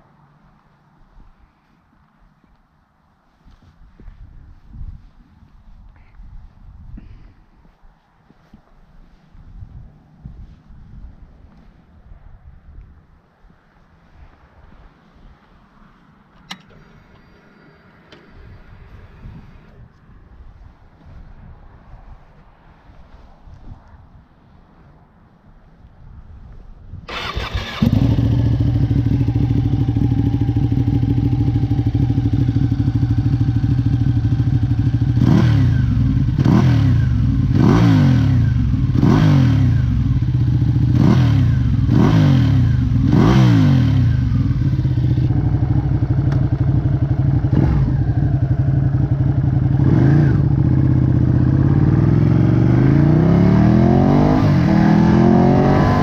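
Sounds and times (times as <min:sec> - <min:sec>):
motorcycle engine idling: 0:27.1 - 0:35.2, 0:44.1 - 0:51.8
motorcycle throttle blips: 0:27.1 - 0:52.9.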